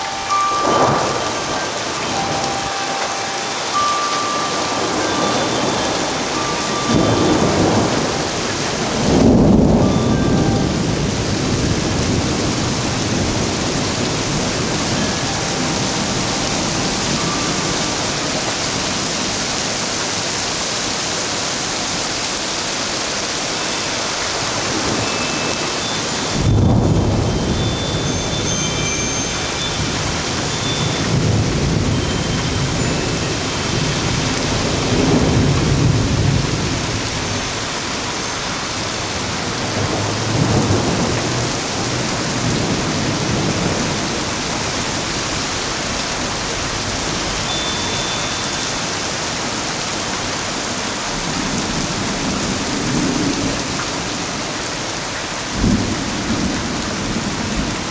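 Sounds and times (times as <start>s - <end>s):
heavy rain falling: 0.0s - 57.9s
thunder clap and rumbling: 3.8s - 18.8s, 26.3s - 37.5s, 39.2s - 45.2s, 55.5s - 57.9s.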